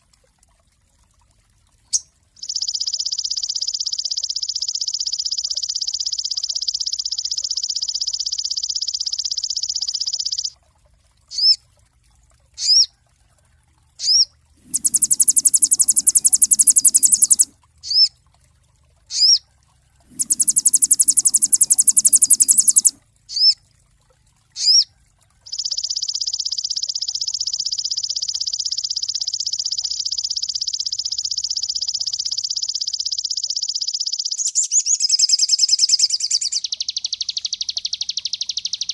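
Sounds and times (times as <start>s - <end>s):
songbird rapid high trill: 14.0s - 18.1s, 20.1s - 23.6s
harsh high bird rattles: 14.6s - 17.5s, 20.1s - 23.0s.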